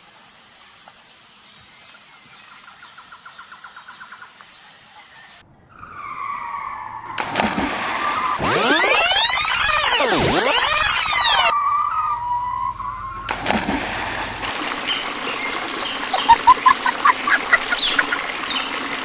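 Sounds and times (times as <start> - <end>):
water splash: 7.1 - 9.8, 13.2 - 19.0
birds chirping: 14.8 - 19.0.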